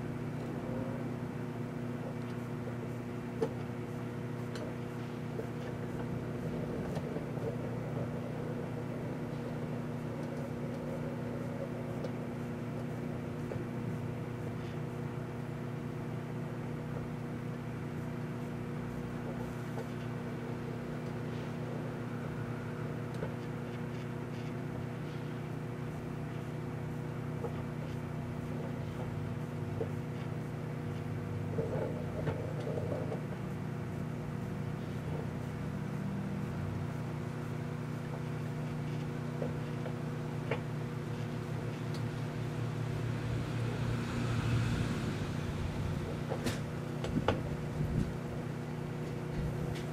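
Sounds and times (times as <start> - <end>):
microwave oven humming: 0.0 - 49.9.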